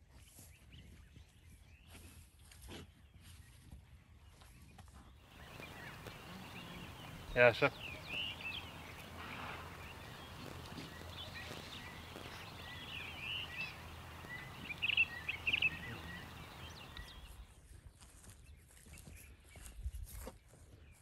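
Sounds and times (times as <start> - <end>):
birds chirping: 5.3 - 17.5.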